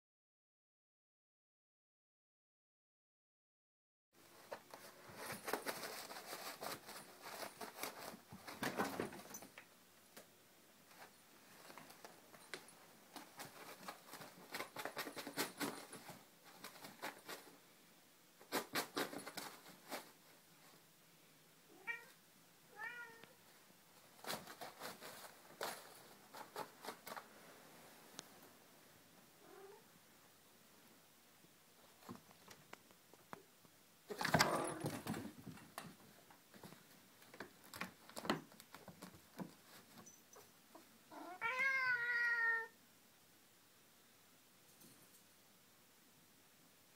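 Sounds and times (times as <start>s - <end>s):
paper rustling and tearing: 4.5s - 9.2s, 24.1s - 27.3s
cat meowing: 21.7s - 23.4s, 29.4s - 29.9s, 41.1s - 42.8s.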